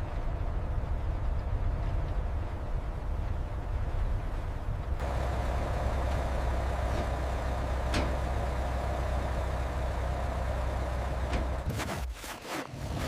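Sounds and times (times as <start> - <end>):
engine rumbling: 0.0 - 13.0
steady hum: 5.0 - 11.8.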